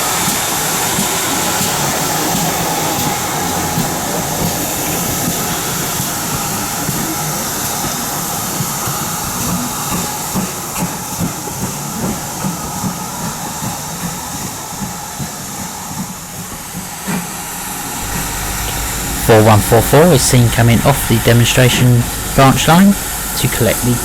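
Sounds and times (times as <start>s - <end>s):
steam locomotive hissing: 0.0s - 24.0s
soft regular beats: 18.0s - 24.0s.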